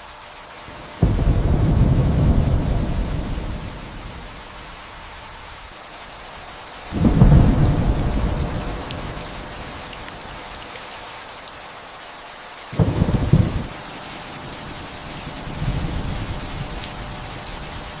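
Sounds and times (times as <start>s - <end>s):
steady rain: 0.0s - 18.0s
thunder rolling: 1.0s - 4.4s, 6.9s - 9.4s, 12.8s - 13.7s.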